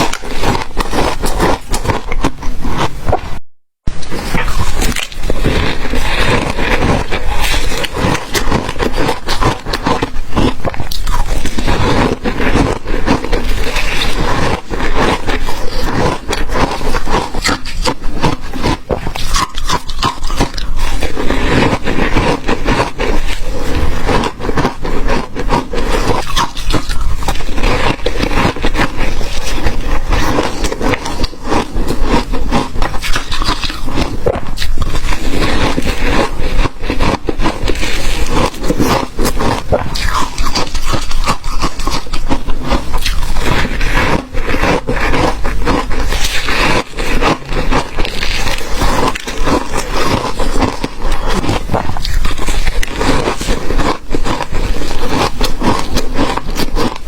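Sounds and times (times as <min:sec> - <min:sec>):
ice being chewed: 0:00.0 - 0:03.4, 0:04.0 - 0:57.0.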